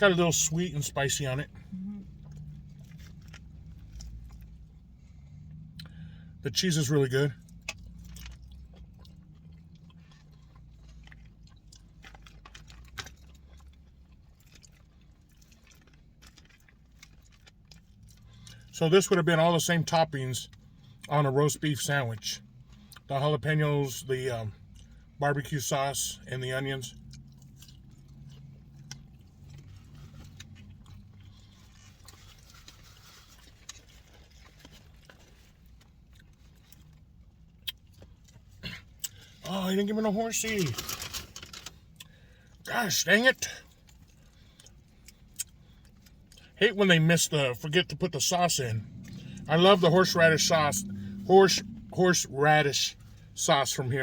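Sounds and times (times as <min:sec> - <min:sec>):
chewing soft food: 0:00.1 - 0:06.5, 0:07.3 - 0:19.2, 0:22.1 - 0:23.2, 0:24.5 - 0:25.2, 0:26.9 - 0:42.7, 0:43.4 - 0:46.6, 0:47.2 - 0:53.4
person chewing with mouth clicks: 0:07.4 - 0:18.7
low hum: 0:47.0 - 0:54.0.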